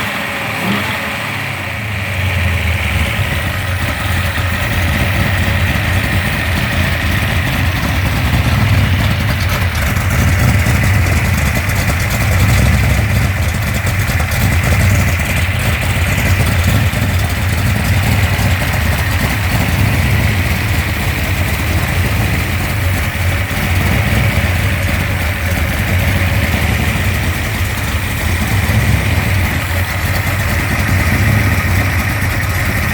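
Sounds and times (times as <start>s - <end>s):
vee eight engine idling: 0.0s - 32.9s.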